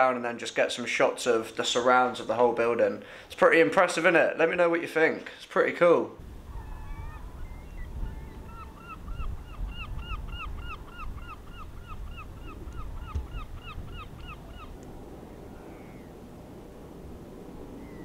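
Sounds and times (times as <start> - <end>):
wind rumble: 6.2 - 18.0
downward-slurred bird call: 6.5 - 14.8.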